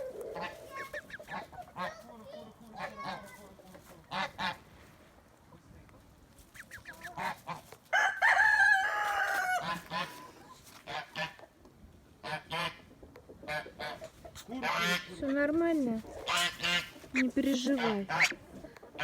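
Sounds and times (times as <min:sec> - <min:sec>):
poultry honking calls: 0:04.1 - 0:04.6, 0:06.6 - 0:11.4, 0:12.2 - 0:12.8, 0:13.5 - 0:15.4, 0:16.0 - 0:19.0.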